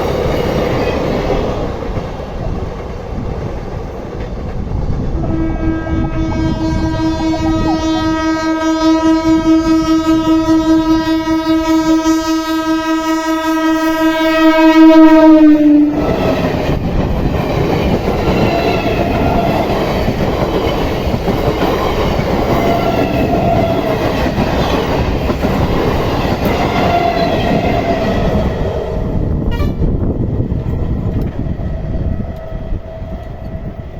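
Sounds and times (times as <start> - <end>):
train wheels clattering on rails: 0.0 - 5.2, 15.9 - 33.9
train horn blast: 5.1 - 16.2, 29.4 - 30.0.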